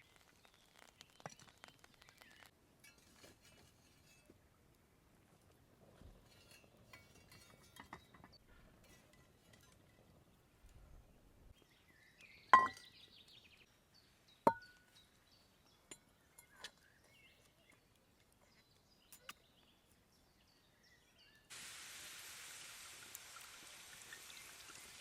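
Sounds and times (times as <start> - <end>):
kitchenware clinking: 12.5 - 12.8.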